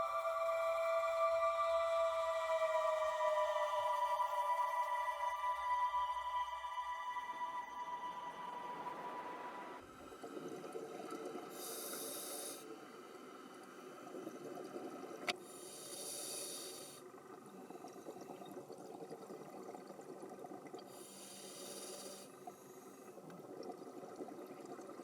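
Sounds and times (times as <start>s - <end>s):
regulator hissing inhalations: 11.5s - 12.7s, 15.4s - 17.1s, 20.9s - 23.2s.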